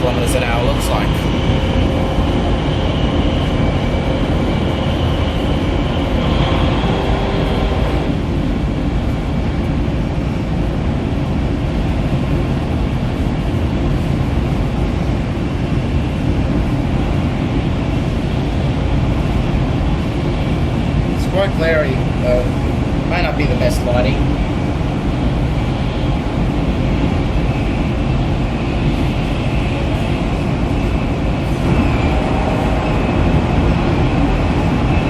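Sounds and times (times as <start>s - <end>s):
faint high whine: 0.0s - 8.2s
train rumbling at speed: 0.0s - 35.0s.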